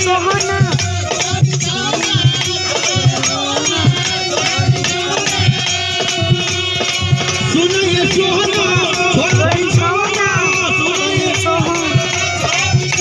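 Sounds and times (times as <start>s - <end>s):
hand drum beat: 0.0s - 13.0s
light percussion: 0.0s - 13.0s
melody instrument playing tune: 7.0s - 12.3s.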